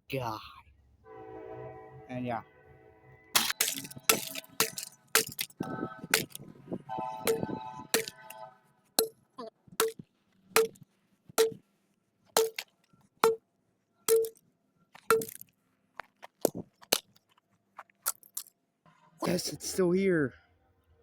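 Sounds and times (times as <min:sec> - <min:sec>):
hammer striking metal casing: 0:03.4 - 0:06.4, 0:07.2 - 0:08.4, 0:09.8 - 0:10.0, 0:10.6 - 0:10.8, 0:11.4 - 0:11.6, 0:12.4 - 0:12.6, 0:14.1 - 0:14.4, 0:15.1 - 0:15.4.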